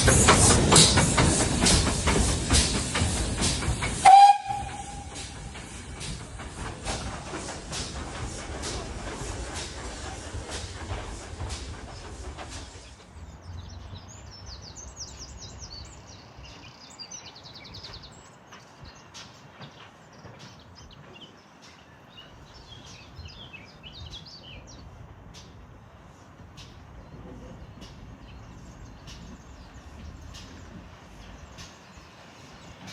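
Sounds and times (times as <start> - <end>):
small birds chirping: 7.9 - 32.9.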